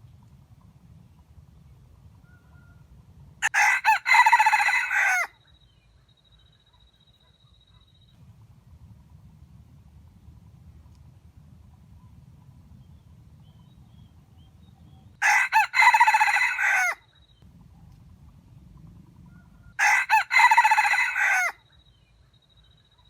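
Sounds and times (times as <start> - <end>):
rooster crowing: 3.4 - 5.4, 15.2 - 17.0, 19.4 - 21.6.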